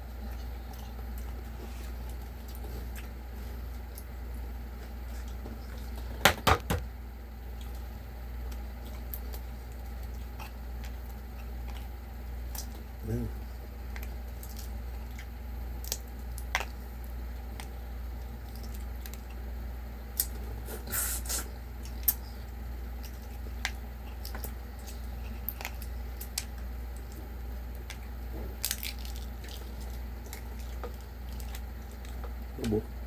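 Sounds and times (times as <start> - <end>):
steady low hum: 0.0 - 33.0
wet chewing clicks and smacks: 0.1 - 4.5, 7.4 - 33.0.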